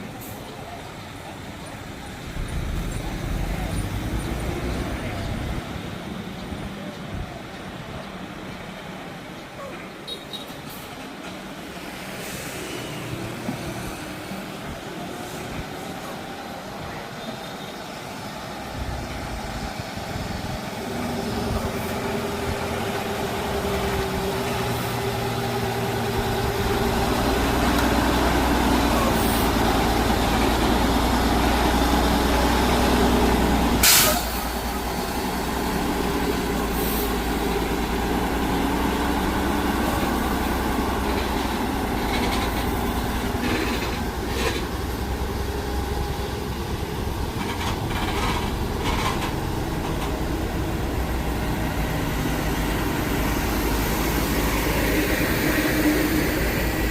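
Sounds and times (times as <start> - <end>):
truck engine labouring: 0.0 - 56.9
loud air hiss: 12.0 - 14.2, 33.7 - 35.3, 36.5 - 37.4.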